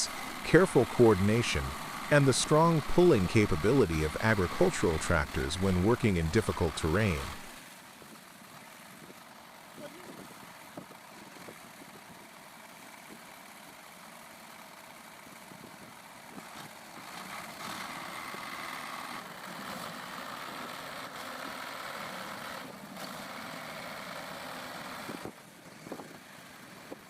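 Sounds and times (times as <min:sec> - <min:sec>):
heavy machine engine running: 0:00.0 - 0:27.0.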